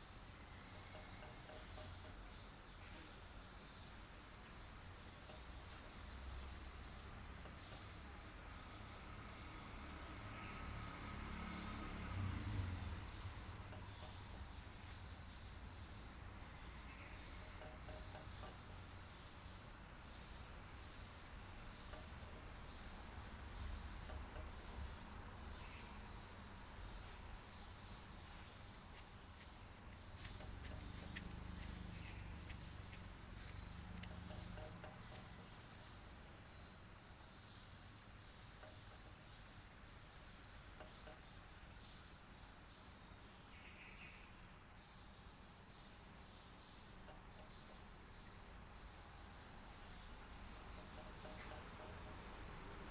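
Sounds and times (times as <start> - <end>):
insects trilling: 0.0 - 52.9
low fan hum: 24.6 - 35.3.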